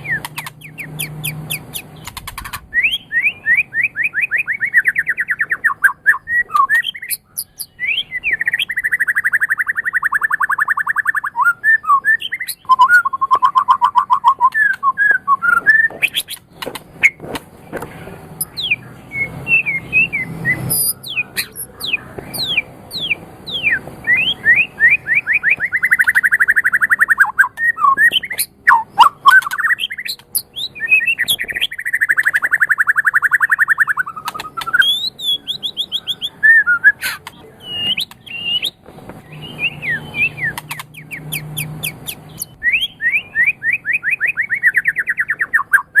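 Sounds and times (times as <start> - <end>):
bird rattling trills: 0.0 - 3.1, 12.4 - 17.2, 37.0 - 42.6
bird singing whistled song: 0.0 - 16.4, 18.4 - 46.0.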